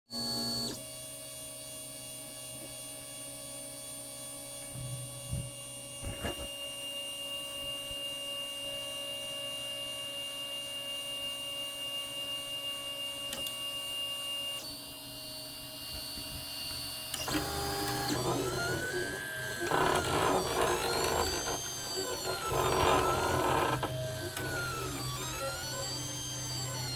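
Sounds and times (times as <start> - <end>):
printer mechanical hum: 16.6 - 26.9.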